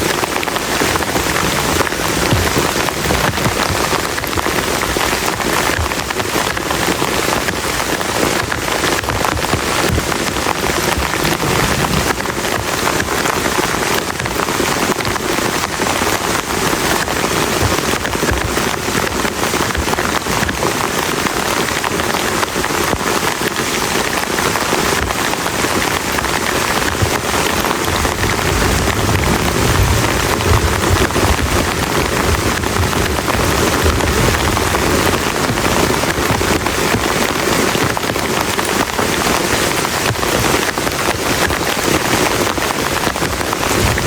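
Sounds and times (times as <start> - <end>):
heavy rain on a plastic tarp: 0.0 - 44.0
distant thunder rumble: 9.8 - 14.0, 27.3 - 36.9.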